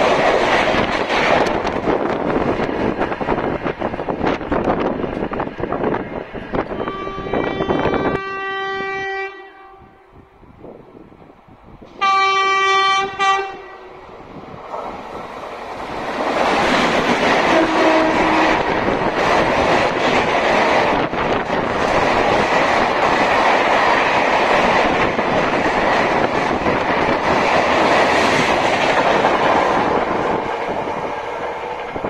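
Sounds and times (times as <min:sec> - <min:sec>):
train rushing past: 0:00.0 - 0:32.0
train horn blasts: 0:06.7 - 0:10.3, 0:12.0 - 0:14.0, 0:17.5 - 0:18.8.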